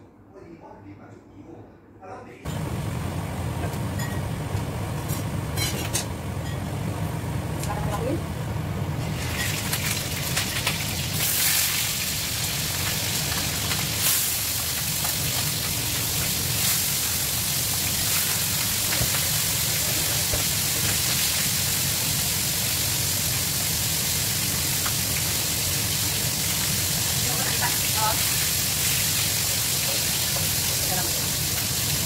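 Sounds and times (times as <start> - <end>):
meat sizzling in frying pan: 8.6 - 32.0.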